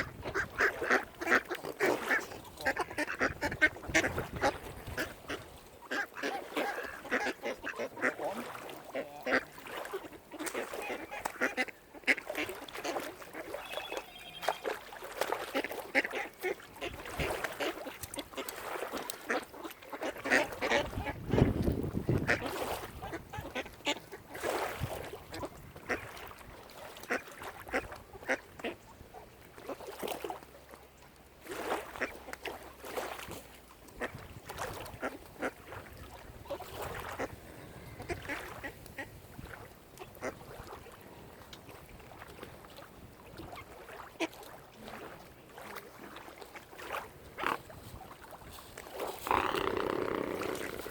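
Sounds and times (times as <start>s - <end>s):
waterfowl calling: 0.0s - 21.2s, 36.5s - 39.1s, 49.2s - 50.9s.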